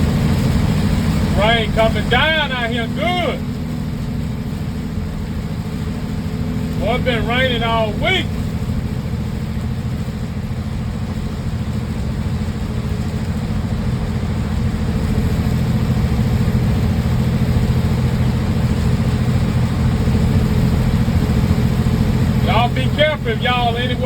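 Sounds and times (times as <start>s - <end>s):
truck engine drone in cab: 0.0s - 24.0s
constant hiss: 1.2s - 4.8s.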